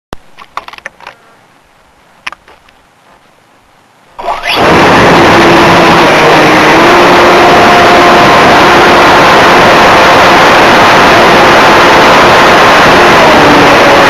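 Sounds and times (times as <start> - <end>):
electric motor whine: 4.2 - 14.0
propeller and rushing air: 4.2 - 14.0.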